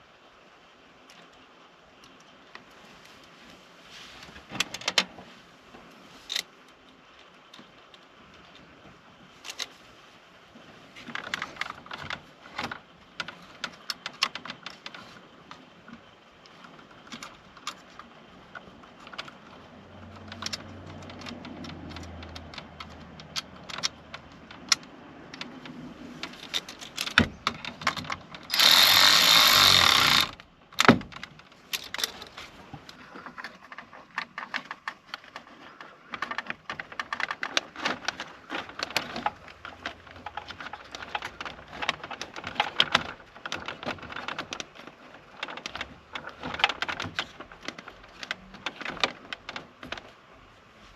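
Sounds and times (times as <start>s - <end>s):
hand tools clicking and rattling: 16.6s - 50.0s.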